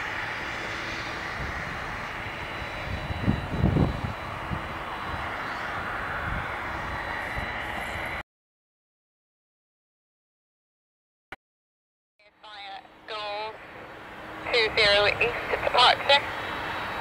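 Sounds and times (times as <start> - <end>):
jet engines humming and whining: 0.0 - 8.2, 12.3 - 17.0
wind buffeting microphone: 0.0 - 8.2.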